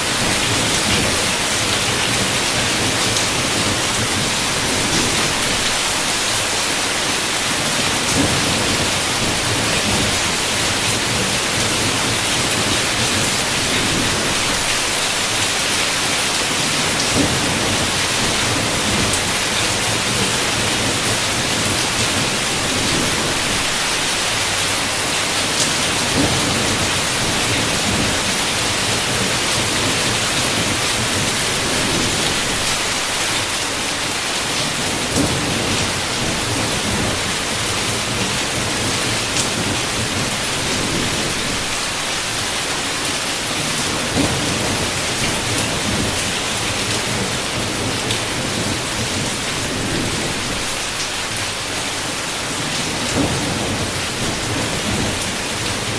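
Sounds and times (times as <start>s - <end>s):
heavy rain against a window: 0.0s - 55.9s.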